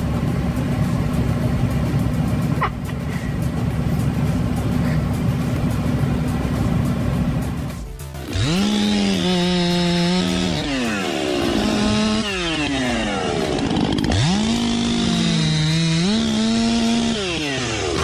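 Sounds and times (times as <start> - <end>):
chainsaw revving: 8.2 - 18.0.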